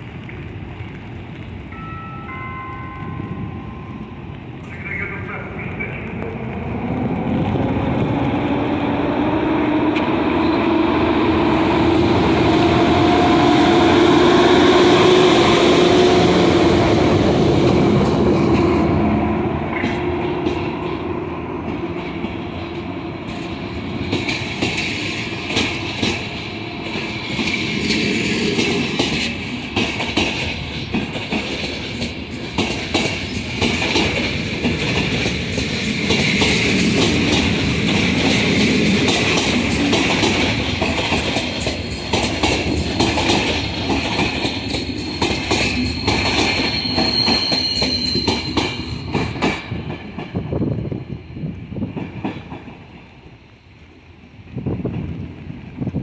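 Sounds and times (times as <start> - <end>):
train wheels clicking over rail joints: 19.6 - 53.4
wheel squeal: 44.8 - 49.4.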